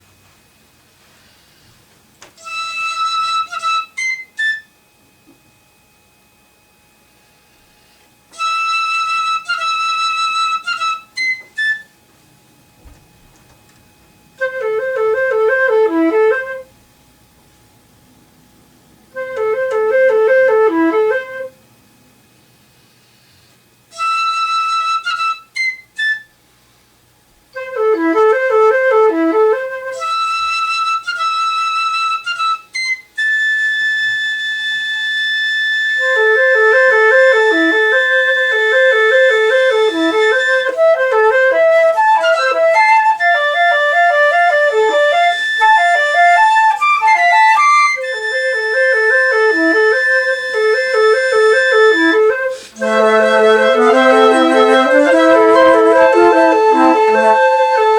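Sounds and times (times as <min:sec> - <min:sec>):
flute ensemble playing: 0:02.4 - 0:04.6, 0:08.4 - 0:11.9, 0:14.4 - 0:16.7, 0:19.1 - 0:21.6, 0:23.9 - 0:26.3, 0:27.6 - 0:57.9.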